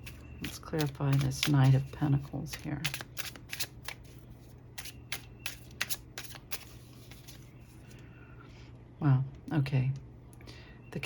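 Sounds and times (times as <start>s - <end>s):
cards being shuffled: 0.0s - 7.9s
steady low hum: 0.0s - 11.0s.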